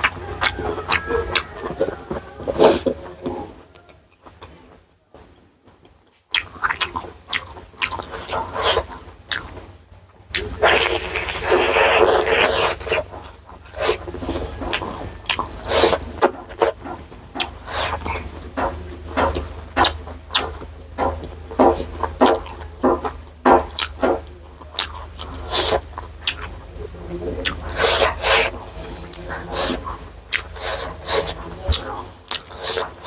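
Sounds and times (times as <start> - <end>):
wet chewing and mouth smacks: 0.0 - 4.6, 5.8 - 26.8, 27.4 - 33.0
wet slurp: 6.4 - 9.6, 10.3 - 16.8, 17.4 - 18.3, 24.7 - 26.6, 27.4 - 33.0.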